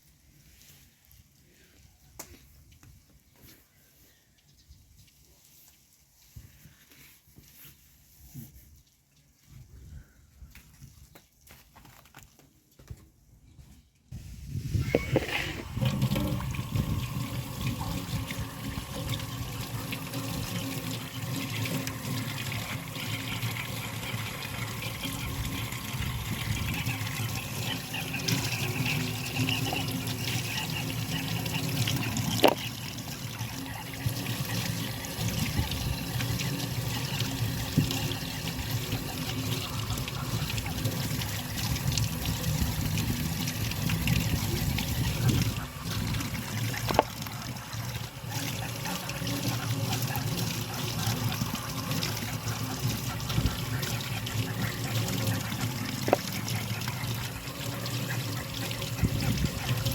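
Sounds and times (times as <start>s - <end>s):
water trickling: 14.8s - 59.9s.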